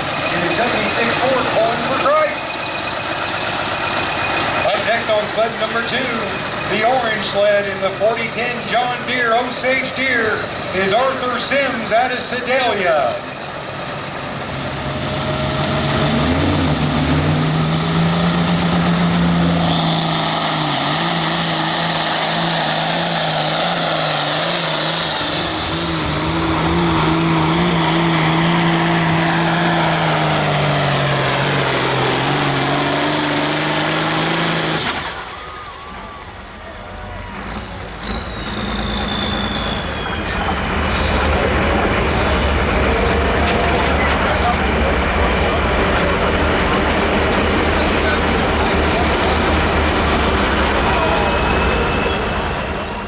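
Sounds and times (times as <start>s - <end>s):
tractor engine under load: 0.0s - 53.0s.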